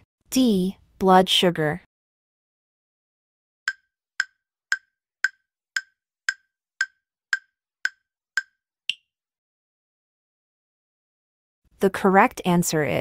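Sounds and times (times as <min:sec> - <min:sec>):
wood-block timer ticks: 0:03.7 - 0:09.0.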